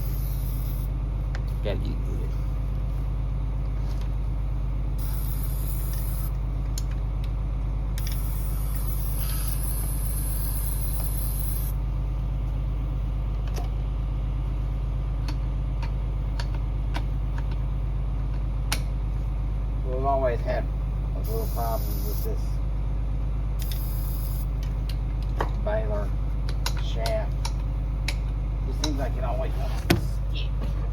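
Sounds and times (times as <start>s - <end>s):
aerosol can spraying: 0.0s - 0.9s, 5.0s - 6.4s, 8.0s - 11.8s, 21.2s - 22.3s, 23.6s - 24.5s
tractor engine idling: 0.0s - 30.9s.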